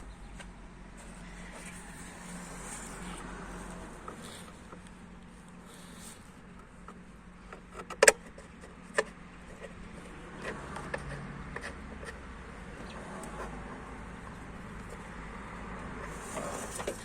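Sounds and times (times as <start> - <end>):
clicks and knocks on car parts: 6.6 - 13.4.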